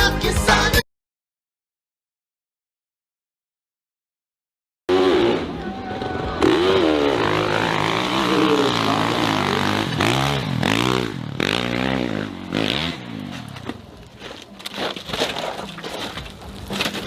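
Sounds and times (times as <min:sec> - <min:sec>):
dirt bike engine revving: 0:04.9 - 0:14.0.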